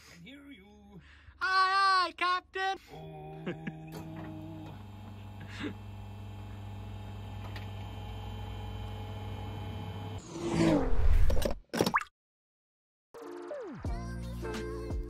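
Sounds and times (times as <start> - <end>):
whoosh sound effect: 10.2 - 11.4.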